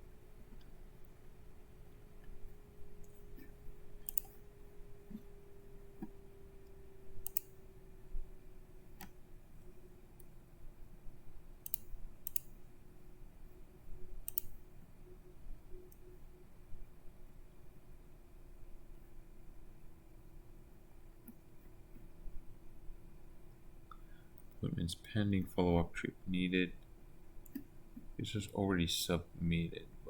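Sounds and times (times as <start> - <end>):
faint steady hum: 0.0 - 30.0
computer mouse clicks: 3.0 - 4.4, 7.2 - 7.6, 9.0 - 9.2, 11.6 - 12.6, 14.2 - 14.6, 27.4 - 28.1.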